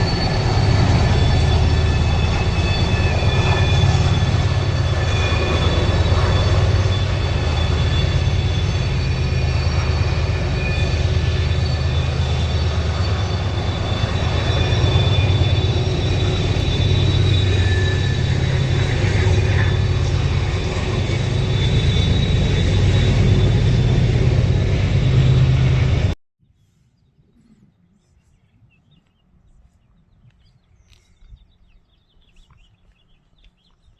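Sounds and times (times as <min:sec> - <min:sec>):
train rumbling on rails: 0:00.0 - 0:26.2
small birds chirping: 0:26.4 - 0:33.9.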